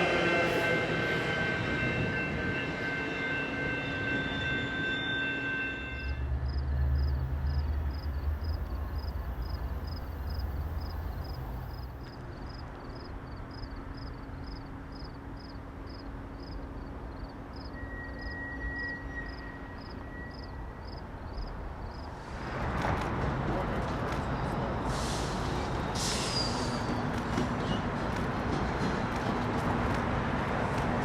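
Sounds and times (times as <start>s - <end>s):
diesel locomotive rumble: 6.2s - 15.3s, 21.6s - 31.0s.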